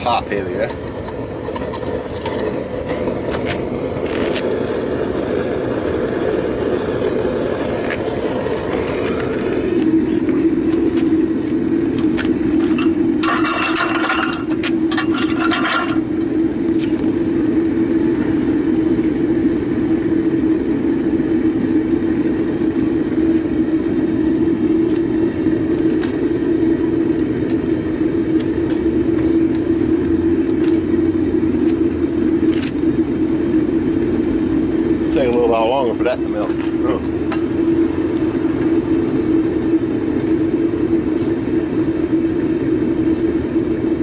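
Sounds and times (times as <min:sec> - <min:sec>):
propane burner roaring: 0:00.0 - 0:44.0
metallic clinks and scrapes: 0:12.7 - 0:16.0.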